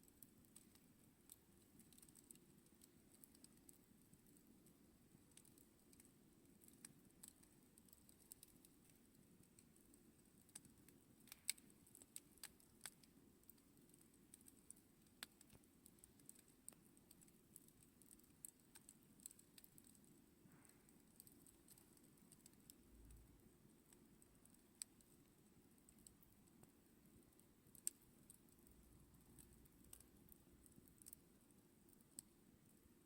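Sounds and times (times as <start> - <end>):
campfire crackling and popping: 5.3 - 20.0, 27.3 - 28.6.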